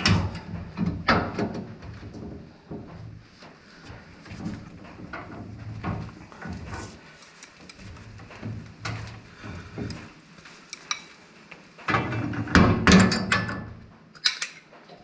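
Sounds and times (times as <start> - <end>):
hand tools clanking on metal: 11.9 - 15.0.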